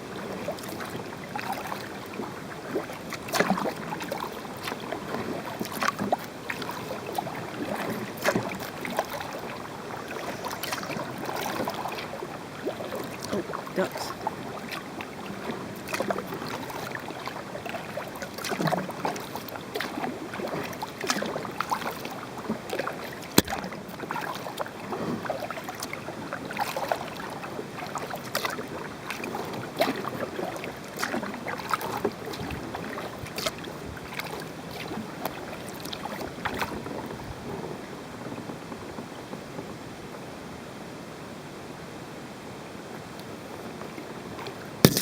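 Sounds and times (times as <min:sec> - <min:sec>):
paddle splashing in water: 0:00.0 - 0:39.7, 0:42.9 - 0:45.0
water dripping: 0:23.3 - 0:23.7.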